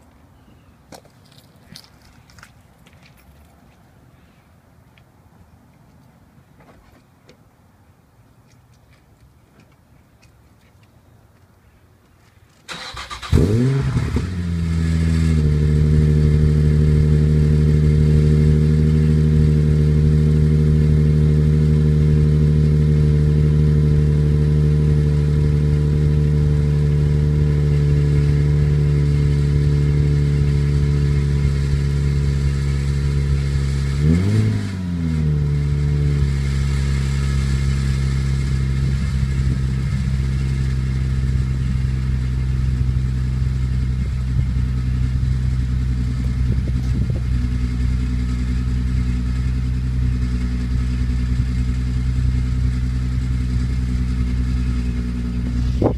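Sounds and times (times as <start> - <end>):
engine revving: 12.7 - 55.9
car engine idling: 35.4 - 55.9.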